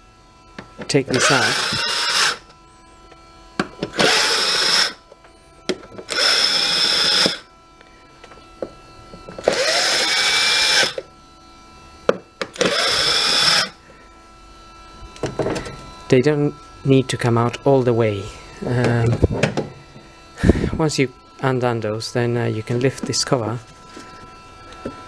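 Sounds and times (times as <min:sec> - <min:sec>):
cordless drill whirring: 0:01.1 - 0:02.5, 0:03.8 - 0:05.0, 0:06.0 - 0:07.4, 0:09.4 - 0:11.1, 0:12.4 - 0:13.8.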